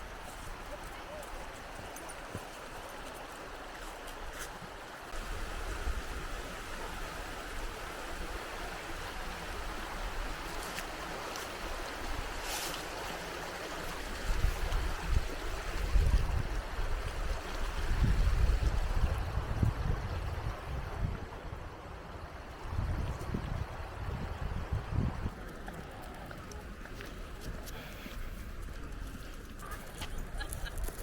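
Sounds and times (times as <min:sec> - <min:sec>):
river water rushing: 0:00.0 - 0:17.9
wind buffeting microphone: 0:14.1 - 0:21.8, 0:22.5 - 0:31.0.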